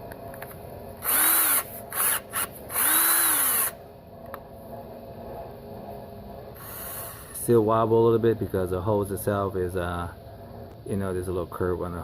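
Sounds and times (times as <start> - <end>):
power drill winding up: 1.0 - 3.8, 6.6 - 7.3.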